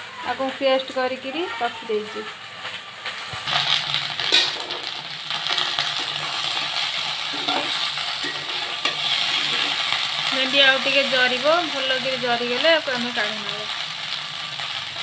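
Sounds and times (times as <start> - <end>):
okra sizzling in oil: 0.0 - 15.0
spatula scraping metal pan: 3.4 - 10.3.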